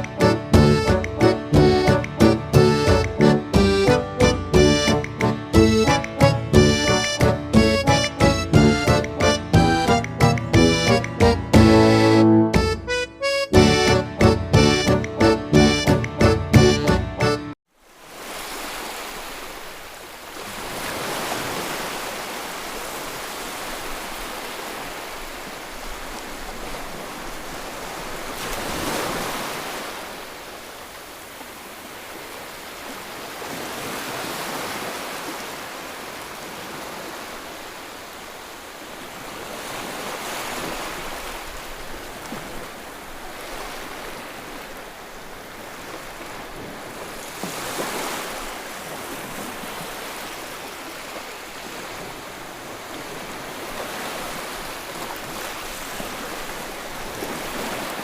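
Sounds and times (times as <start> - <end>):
waves breaking on a beach: 17.2 - 58.0.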